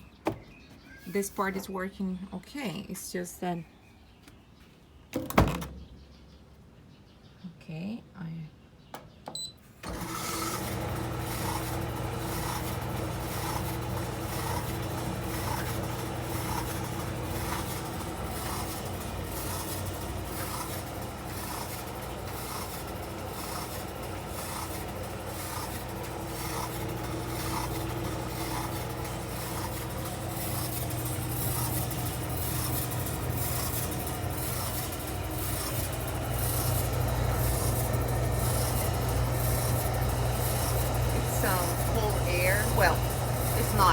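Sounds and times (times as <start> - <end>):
tumble dryer motor humming: 9.8 - 43.9.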